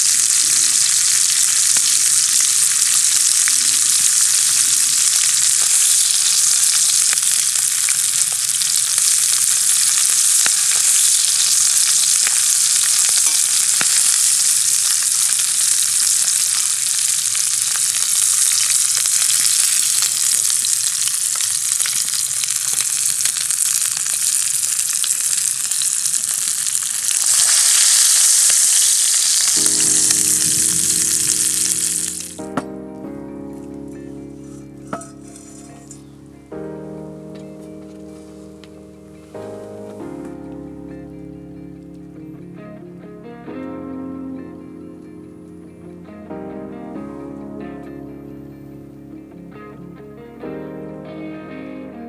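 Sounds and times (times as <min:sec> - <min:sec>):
steak sizzling in frying pan: 0:00.0 - 0:32.7, 0:33.7 - 0:36.3
soft background music: 0:00.1 - 0:07.1, 0:07.8 - 0:16.5, 0:29.2 - 0:52.0.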